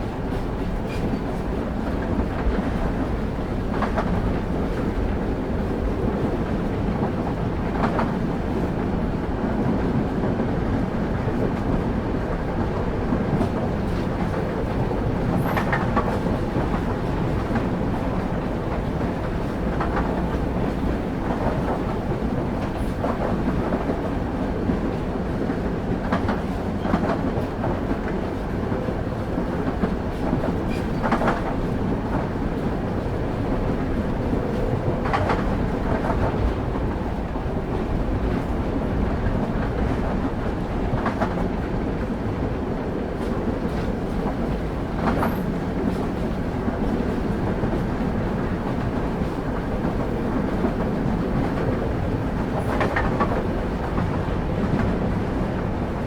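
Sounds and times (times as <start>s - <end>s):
train wheels rumbling on rails: 0.0s - 56.0s
wheels clacking over rail joints: 43.2s - 55.9s.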